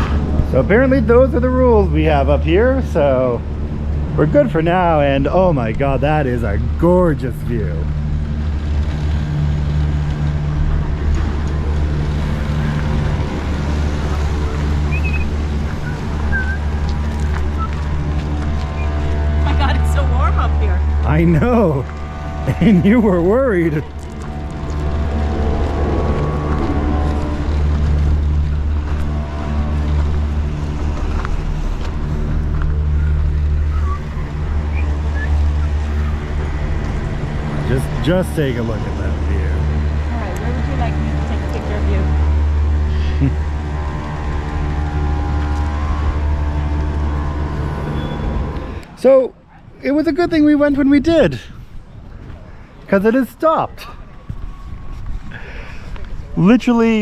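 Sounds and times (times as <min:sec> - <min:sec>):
gondola lift machinery humming: 0:00.0 - 0:57.0.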